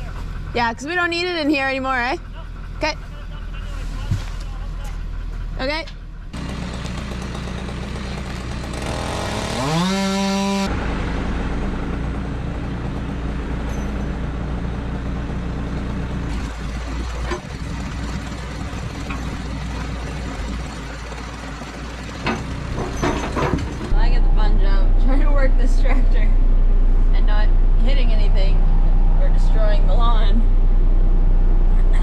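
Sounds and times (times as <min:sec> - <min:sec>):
tractor engine running: 0:00.0 - 0:32.0
engine revving: 0:06.3 - 0:31.8.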